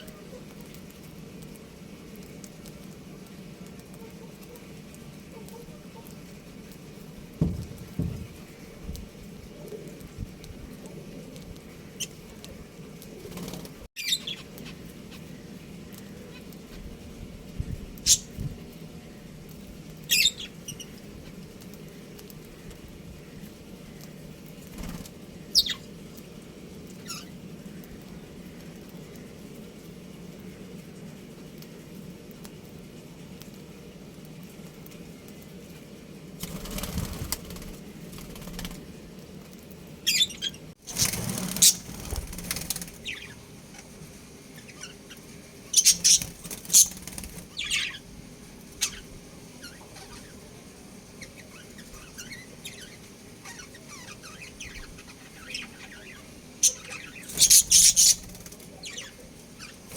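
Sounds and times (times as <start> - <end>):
low steady hum: 0.0 - 59.9
steady background noise: 0.0 - 59.9
budgerigars chirping: 14.0 - 14.8, 25.6 - 25.8, 45.8 - 47.0, 51.2 - 59.8
budgerigar chirps: 56.6 - 58.2.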